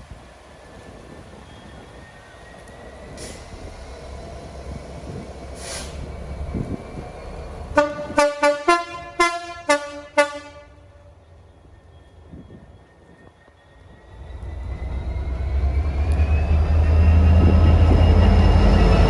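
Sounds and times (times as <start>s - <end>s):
low diesel engine rumble: 0.0s - 11.2s
locomotive two-tone horn blasts: 7.8s - 11.1s.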